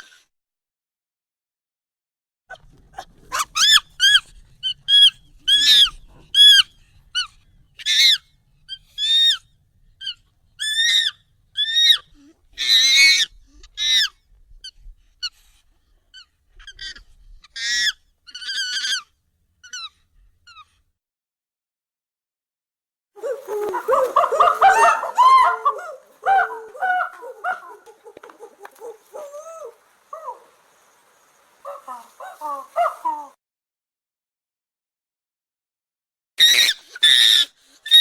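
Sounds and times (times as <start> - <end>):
high-pitched monkey squeals: 3.0 - 9.4, 10.0 - 15.4, 16.1 - 20.7, 23.2 - 30.5, 31.6 - 33.4, 36.4 - 38.0.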